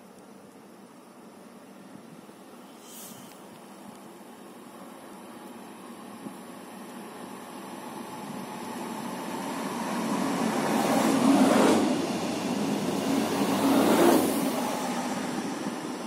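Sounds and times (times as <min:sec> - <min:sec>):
diesel train passing: 0:04.5 - 0:16.0.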